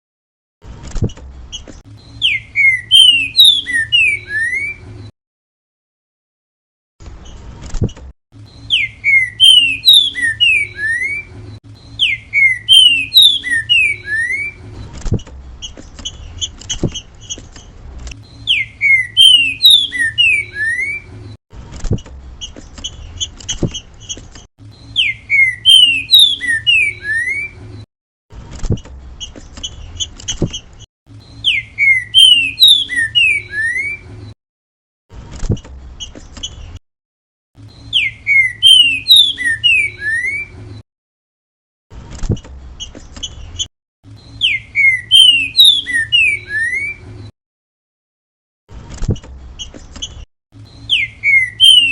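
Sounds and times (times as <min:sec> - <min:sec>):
rapid bird chirps: 0:01.5 - 0:04.8, 0:08.4 - 0:14.9, 0:15.6 - 0:21.1, 0:22.4 - 0:27.6, 0:29.2 - 0:34.1, 0:37.6 - 0:40.6, 0:42.8 - 0:47.0, 0:49.6 - 0:51.9
bird whistling song: 0:01.5 - 0:04.9, 0:08.4 - 0:14.7, 0:18.2 - 0:21.2, 0:24.7 - 0:27.7, 0:31.2 - 0:34.2, 0:37.6 - 0:40.6, 0:42.8 - 0:47.1, 0:49.6 - 0:51.9.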